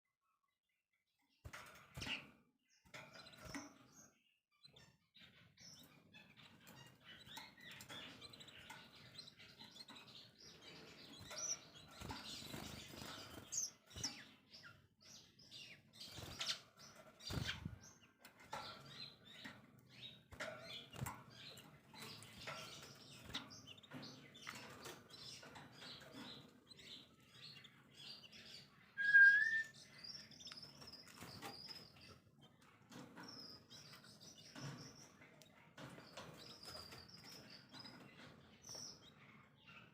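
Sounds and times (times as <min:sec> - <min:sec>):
songbirds chirping and twittering: 0:00.2 - 0:39.9
high thin whistled note: 0:29.0 - 0:29.7.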